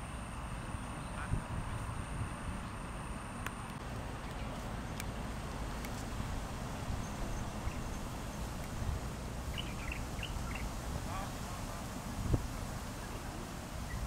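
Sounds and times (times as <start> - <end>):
faint bird chirps: 9.5 - 10.7.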